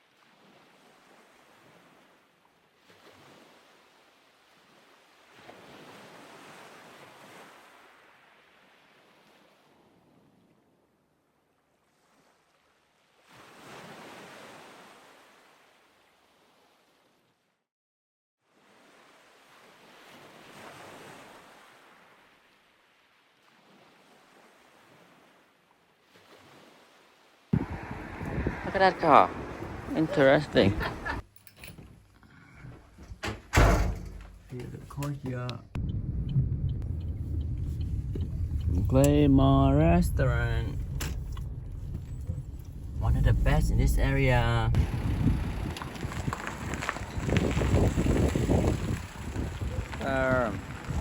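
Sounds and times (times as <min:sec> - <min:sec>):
wind rushing: 0:27.6 - 0:30.1, 0:35.8 - 0:51.0
surf: 0:27.6 - 0:31.2, 0:36.7 - 0:51.0.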